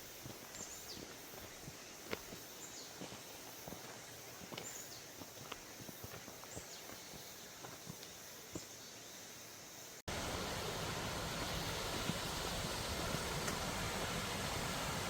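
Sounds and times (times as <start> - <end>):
quiet footsteps: 0.0 - 8.8
stream rushing: 10.1 - 15.0.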